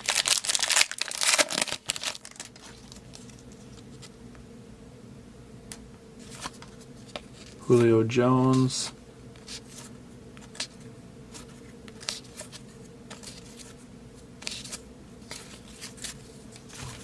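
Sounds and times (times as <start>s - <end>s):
faint steady hum: 0.0s - 17.0s
cards sliding and clicking: 8.5s - 13.8s, 14.4s - 17.0s.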